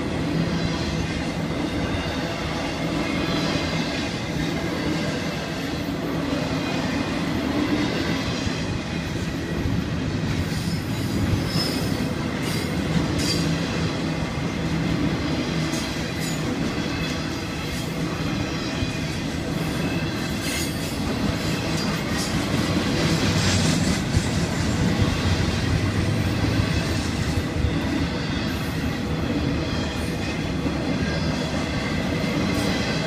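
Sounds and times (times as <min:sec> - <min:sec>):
freight train wheels rumbling: 0:00.0 - 0:33.0
high wheel squeals: 0:10.9 - 0:12.1.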